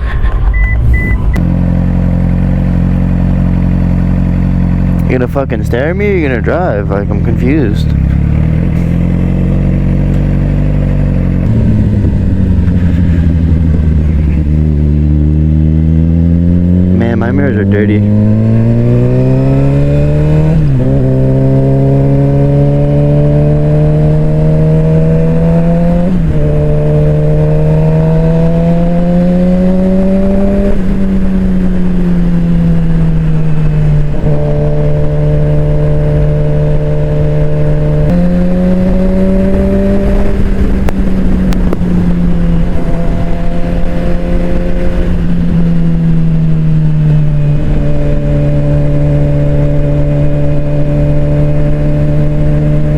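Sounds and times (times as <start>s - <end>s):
motorcycle engine shifting gears: 0.0s - 52.9s.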